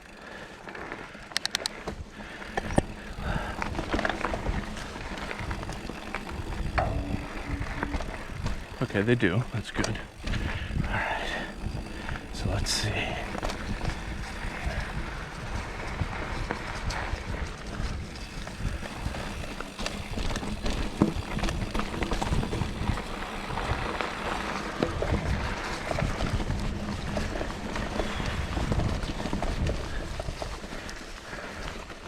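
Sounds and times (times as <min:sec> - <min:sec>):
bike rattling and knocking: 0:00.0 - 0:32.0
bike tyres crunching on dirt: 0:00.0 - 0:32.0
wind on microphone: 0:02.7 - 0:08.8.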